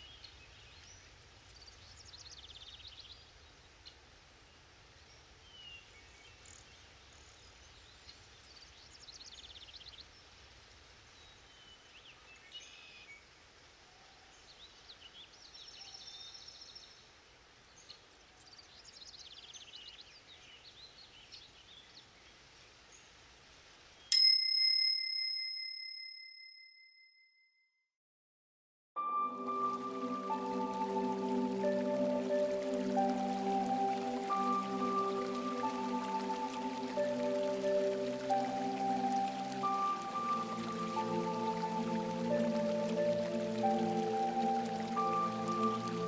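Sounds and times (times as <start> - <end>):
faint steady hiss: 0.0 - 24.6, 29.0 - 46.0
bell ding: 24.2 - 27.3.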